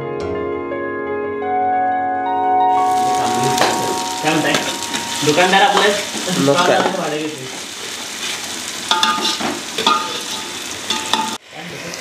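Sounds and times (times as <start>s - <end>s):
vegetables sizzling in hot oil: 2.8s - 12.0s
steel ladle scraping a pot: 7.8s - 11.4s.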